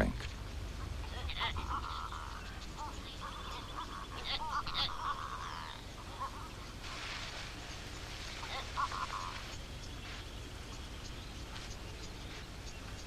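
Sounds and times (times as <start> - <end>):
bird short wavering calls: 0.7 - 13.0
faint insect-like clicking: 8.4 - 13.0.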